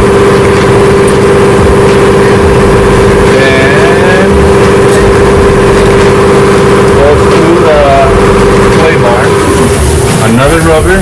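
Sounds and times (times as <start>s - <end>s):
motor-like hum: 0.0s - 11.0s.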